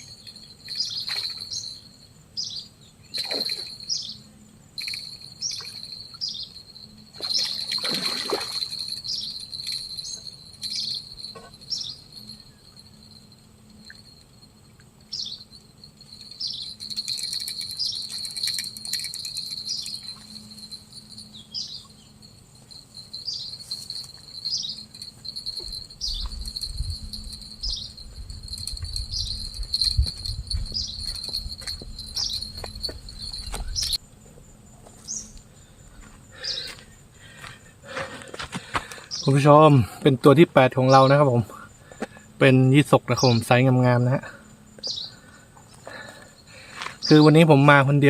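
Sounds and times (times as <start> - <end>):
short chirping calls: 0.0 - 13.1, 15.1 - 22.3, 23.0 - 34.0, 44.8 - 45.2
insects droning: 0.0 - 48.0.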